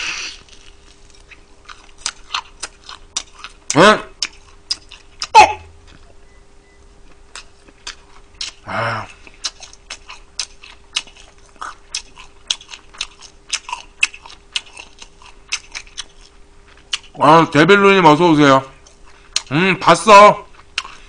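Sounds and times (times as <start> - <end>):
chewing crispy fried chicken: 0.0 - 6.1, 7.0 - 18.1, 18.7 - 21.0
person grunting: 8.6 - 9.2
person humming: 8.6 - 9.2.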